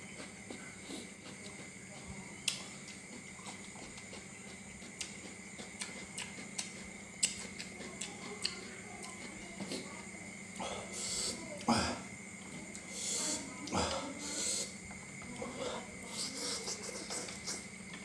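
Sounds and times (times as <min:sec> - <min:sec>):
person chewing crunchy food: 0:00.0 - 0:11.7
faint hum: 0:00.0 - 0:18.0
wet mouth clicks: 0:02.4 - 0:02.7, 0:04.9 - 0:09.2, 0:16.2 - 0:17.7.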